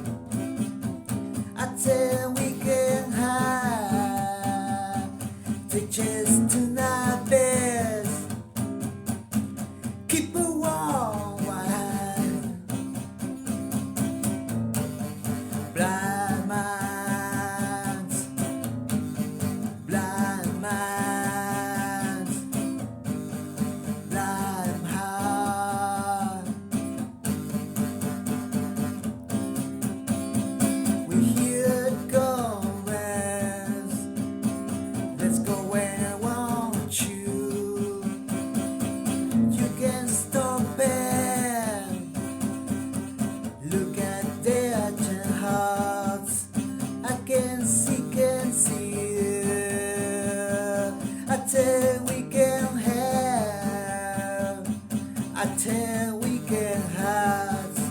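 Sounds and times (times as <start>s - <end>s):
strummed guitar chords: 0.0s - 57.9s.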